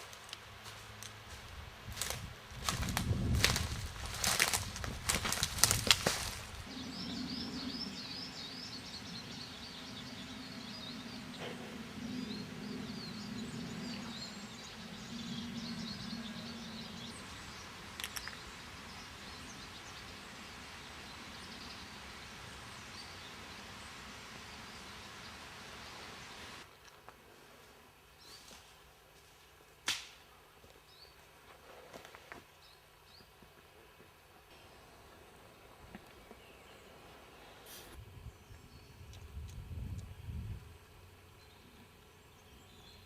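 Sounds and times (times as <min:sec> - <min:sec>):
small birds singing: 0:01.9 - 0:26.8, 0:35.9 - 0:43.0.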